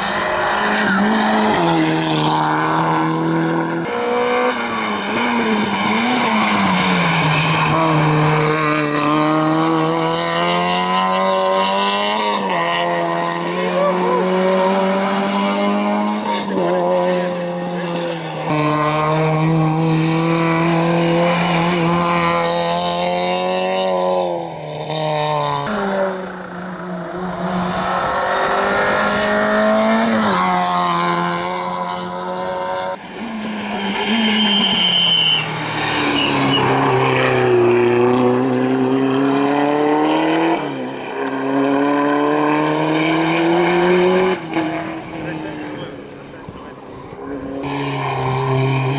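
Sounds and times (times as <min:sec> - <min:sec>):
rally car engines revving: 0:00.0 - 0:48.9
tyre squeal: 0:33.4 - 0:37.6.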